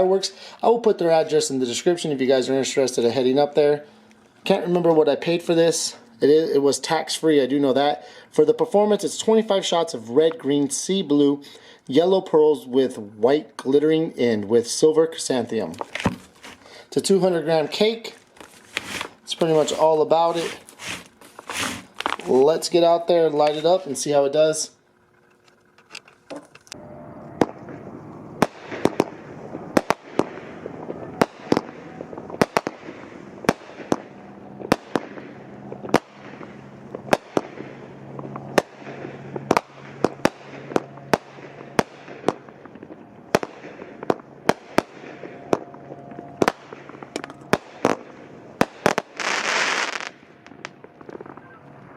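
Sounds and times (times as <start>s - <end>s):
firework bursting reports: 14.8s - 24.4s, 26.7s - 51.9s
loud rushing noise: 26.8s - 49.2s
firework launch thumps: 28.4s - 45.7s.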